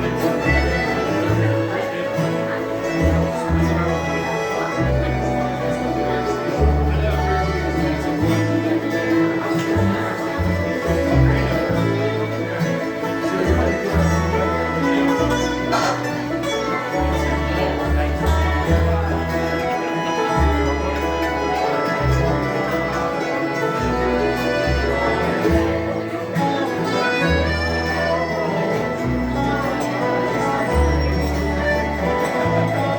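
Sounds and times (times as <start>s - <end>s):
banjo playing: 0.0s - 32.9s
guitar playing: 0.0s - 32.9s.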